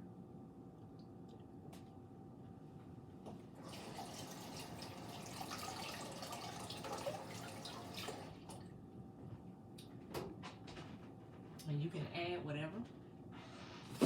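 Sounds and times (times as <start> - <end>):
water running from a tap: 3.6 - 8.6.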